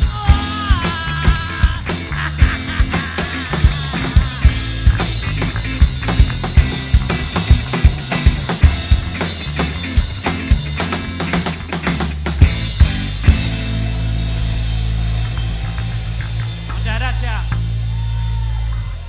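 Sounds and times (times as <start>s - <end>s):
live band instrumental: 0.0s - 19.0s
kick drum beat: 3.6s - 9.2s.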